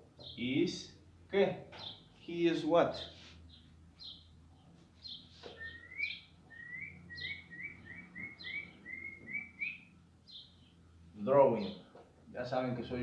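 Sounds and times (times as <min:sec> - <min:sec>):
lower rising bird chirps: 0:03.5 - 0:10.8.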